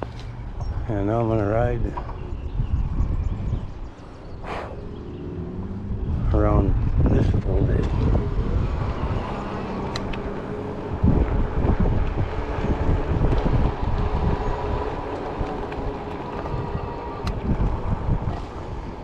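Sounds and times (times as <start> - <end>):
tire rolling noise: 0.0 - 19.0
wind buffeting microphone: 0.0 - 19.0
sharp clicks: 9.7 - 10.3.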